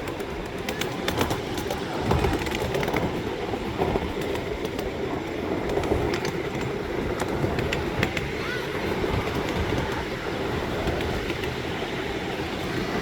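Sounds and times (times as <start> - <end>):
train rolling along tracks: 0.0 - 13.0.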